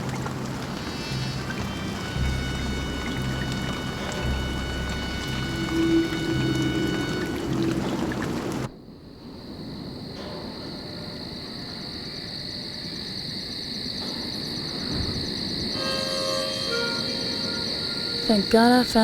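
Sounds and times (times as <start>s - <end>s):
high-pitched animal chorus: 0.0s - 8.7s
low rumble: 0.0s - 8.7s
music: 0.0s - 8.7s, 15.8s - 19.0s.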